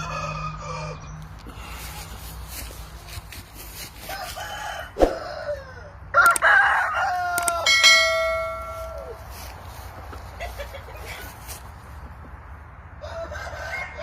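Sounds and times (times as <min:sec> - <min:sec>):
rooster crowing: 0:00.0 - 0:02.2, 0:04.0 - 0:09.2, 0:13.0 - 0:14.0
rooster clucking: 0:04.0 - 0:09.2, 0:09.9 - 0:12.5
sharp click: 0:06.2 - 0:06.5, 0:07.4 - 0:07.6.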